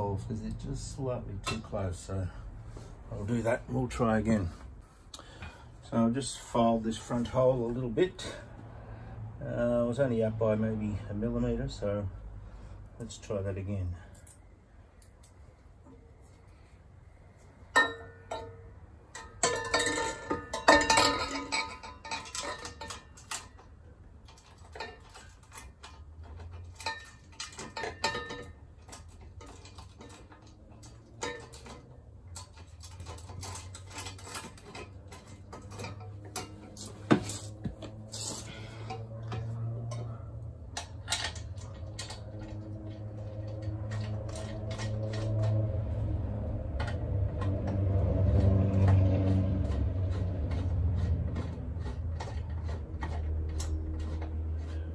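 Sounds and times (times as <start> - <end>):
metal clinking and clattering: 17.7 - 54.9.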